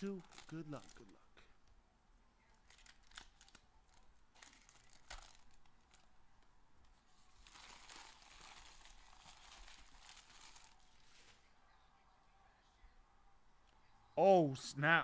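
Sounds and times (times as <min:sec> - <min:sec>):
plastic wrapping crinkling and tearing: 0:00.0 - 0:01.2, 0:02.5 - 0:06.1, 0:07.1 - 0:11.4.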